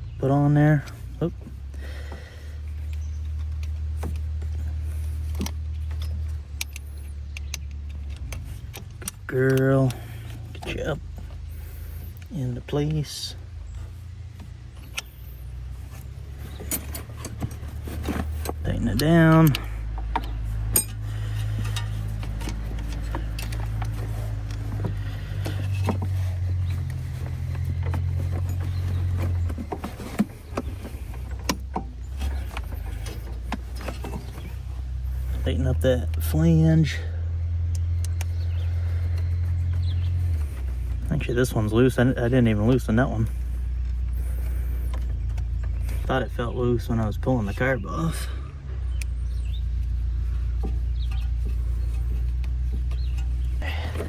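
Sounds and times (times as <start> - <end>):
steady low hum: 0.0 - 54.0
metallic clicks of tools and parts: 2.9 - 10.8, 16.5 - 34.6.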